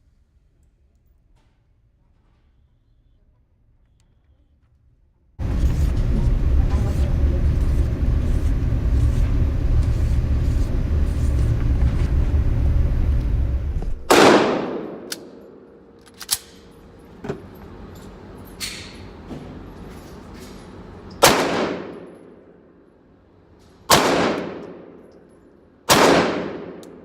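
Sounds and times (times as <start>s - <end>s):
low rumble: 5.4s - 14.1s
pistol shot with ringing tail: 14.1s - 15.7s, 21.2s - 22.2s, 23.9s - 24.9s, 25.9s - 27.0s.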